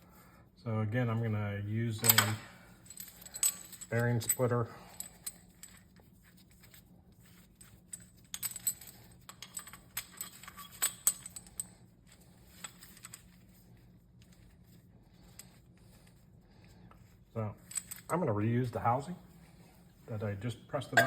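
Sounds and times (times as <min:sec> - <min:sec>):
metal tools clinking: 0:02.0 - 0:05.8, 0:17.6 - 0:18.2.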